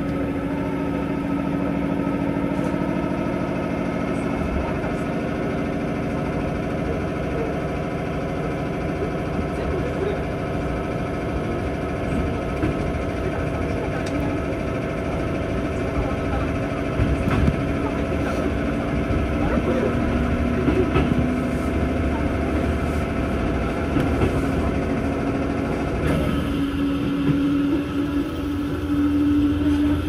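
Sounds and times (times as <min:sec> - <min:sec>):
electric train motor hum: 0:00.0 - 0:30.0.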